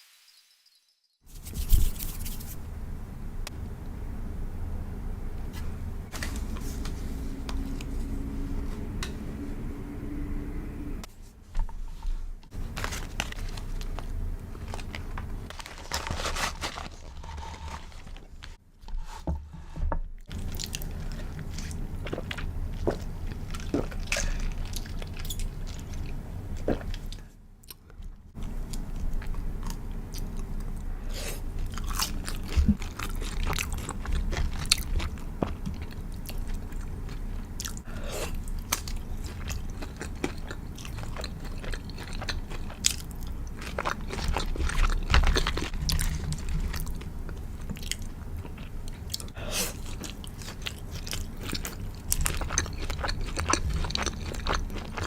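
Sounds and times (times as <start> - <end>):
person chewing crispy burger: 20.3 - 30.8, 31.6 - 55.0.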